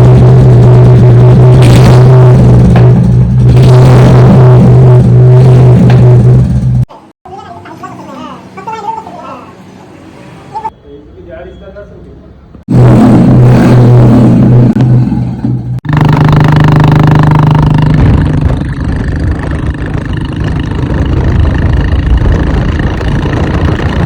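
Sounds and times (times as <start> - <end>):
motorcycle engine running loud: 0.0 - 6.9, 12.7 - 24.0.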